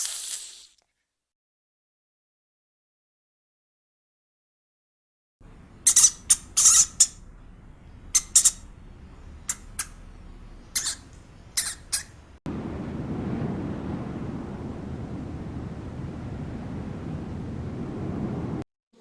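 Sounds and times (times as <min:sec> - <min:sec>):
windy rumble: 0:05.4 - 0:18.7
high-pitched animal squeaks: 0:05.8 - 0:07.3, 0:08.1 - 0:08.8, 0:09.5 - 0:10.0, 0:10.7 - 0:12.2.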